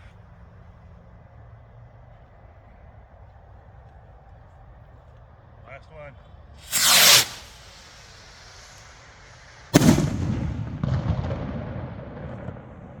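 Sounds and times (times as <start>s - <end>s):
firework rocket bang: 6.6s - 12.7s
smaller firework report: 6.6s - 13.0s.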